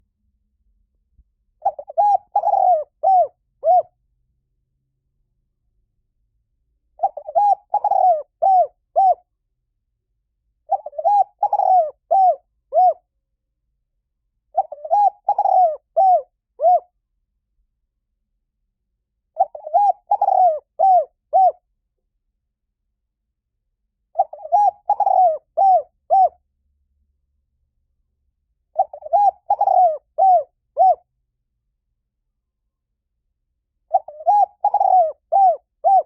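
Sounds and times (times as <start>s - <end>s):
dove cooing: 1.6s - 3.9s, 7.0s - 9.2s, 10.7s - 13.0s, 14.5s - 16.9s, 19.4s - 21.6s, 24.1s - 26.4s, 28.7s - 31.1s, 33.9s - 36.0s.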